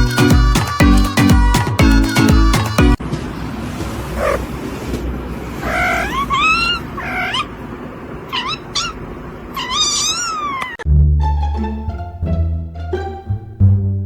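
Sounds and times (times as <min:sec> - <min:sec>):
cat meowing: 0:03.9 - 0:07.6, 0:08.3 - 0:10.8
plucked-string music: 0:10.9 - 0:14.0.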